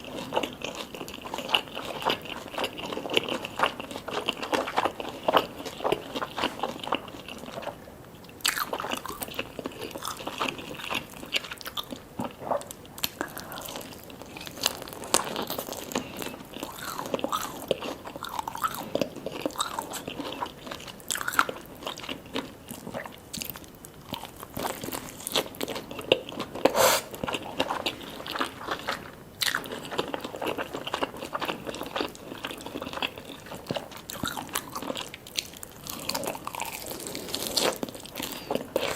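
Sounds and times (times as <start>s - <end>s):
crunchy bites and chewing: 8.4s - 38.9s.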